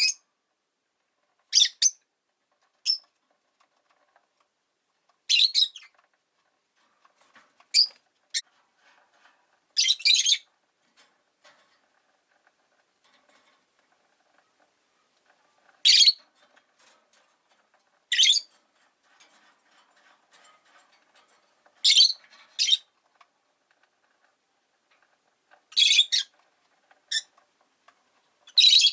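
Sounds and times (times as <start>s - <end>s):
faint rustle: 0.0s - 28.8s
birds' sharp high-pitched calls: 15.9s - 16.2s, 25.7s - 26.3s, 28.5s - 28.9s.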